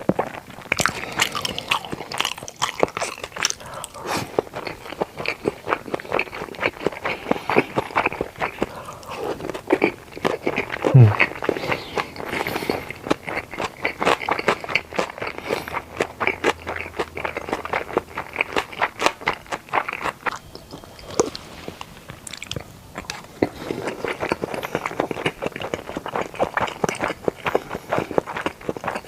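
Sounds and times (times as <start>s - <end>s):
chewing and biting food: 0.0s - 29.0s
wet mouth clicks: 9.8s - 12.2s.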